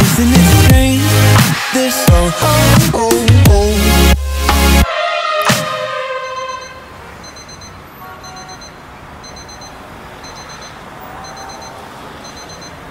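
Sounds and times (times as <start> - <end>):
music chord: 3.8 - 6.7
electronic alarm beeps: 6.2 - 12.8.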